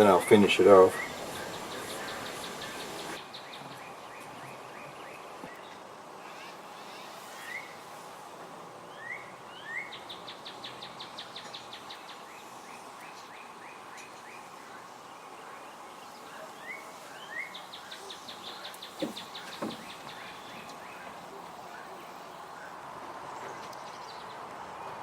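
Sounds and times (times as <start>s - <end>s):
songbird singing: 0.0s - 8.2s, 8.8s - 25.0s
background hiss: 0.0s - 25.0s
short knocks: 19.0s - 20.7s.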